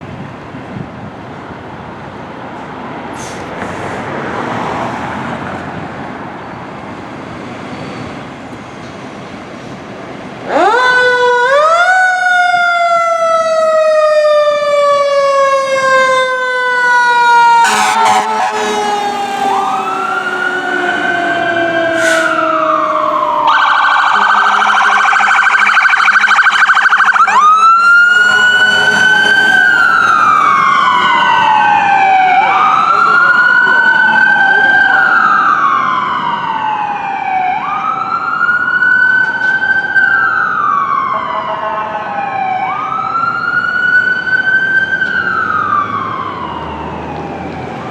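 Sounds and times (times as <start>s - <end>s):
road traffic noise: 0.0s - 47.9s
electronic siren wailing: 10.6s - 39.0s.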